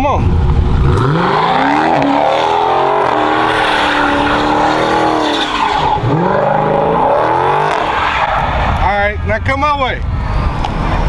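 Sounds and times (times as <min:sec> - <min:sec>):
car engine revving hard: 0:00.0 - 0:08.8
tyres squealing: 0:00.8 - 0:08.8.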